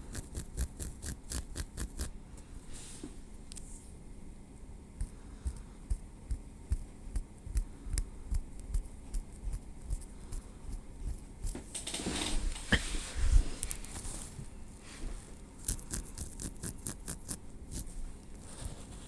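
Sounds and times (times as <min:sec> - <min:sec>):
tweezers clicking on hair: 0:00.0 - 0:02.1, 0:15.6 - 0:17.9
brushing rustle: 0:12.0 - 0:19.0.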